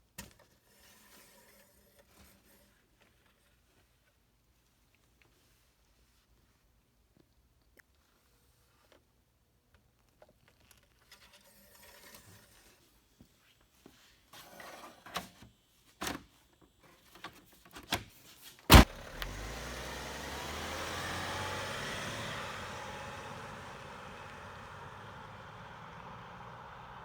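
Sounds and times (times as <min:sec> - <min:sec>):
car door slamming: 0:18.7 - 0:19.4.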